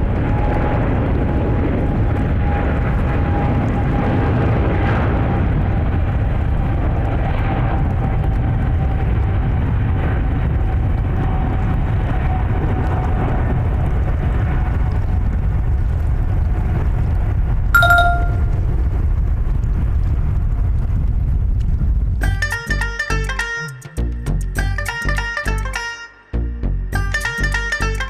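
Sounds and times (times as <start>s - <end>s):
short metallic ding: 17.8s - 18.6s.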